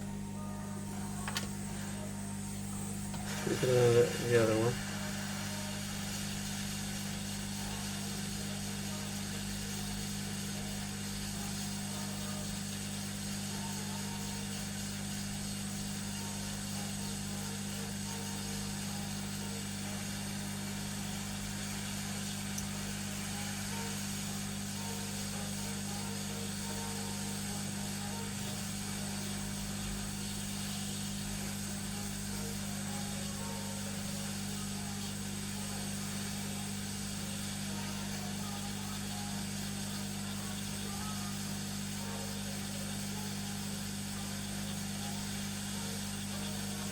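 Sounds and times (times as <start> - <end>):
hot air gun hissing: 2.6 - 11.8.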